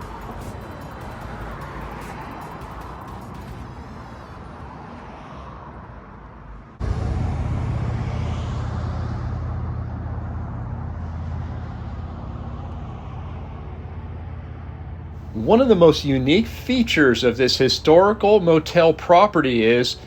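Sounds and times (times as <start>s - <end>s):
vehicle passing on street: 0.0s - 20.0s.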